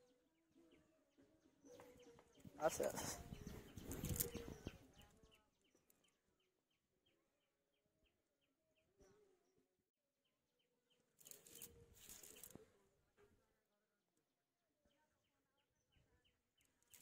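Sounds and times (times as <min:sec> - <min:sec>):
bird chirping: 0:00.0 - 0:12.8.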